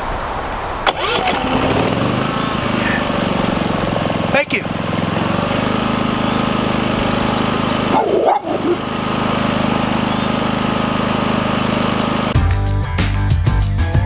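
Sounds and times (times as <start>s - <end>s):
generator engine running: 0.8s - 12.5s
music: 12.4s - 14.0s.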